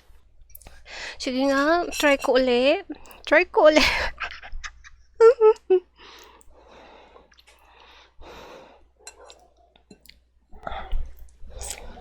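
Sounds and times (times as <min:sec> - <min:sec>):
slurping and chewing noodles: 0:06.0 - 0:12.0.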